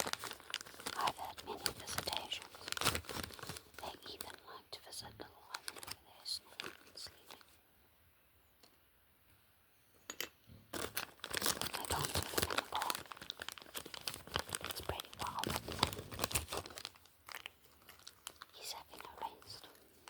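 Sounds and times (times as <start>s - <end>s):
packaging crinkling and tearing: 0.0s - 4.6s, 5.3s - 7.5s, 10.7s - 20.0s.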